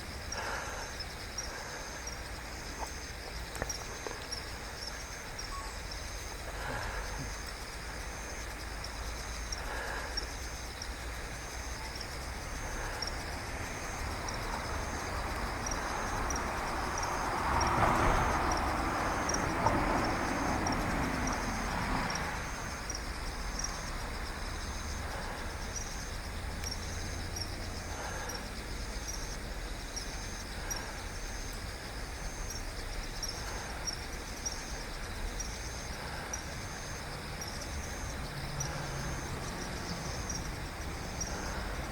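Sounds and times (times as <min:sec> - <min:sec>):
high-pitched insect chirp: 0:00.0 - 0:41.9
vehicle passing: 0:11.0 - 0:28.3, 0:36.0 - 0:41.9.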